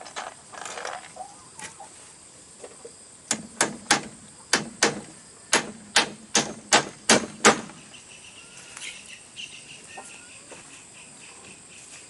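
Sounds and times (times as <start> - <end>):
hand tool striking bamboo: 3.3 - 7.8.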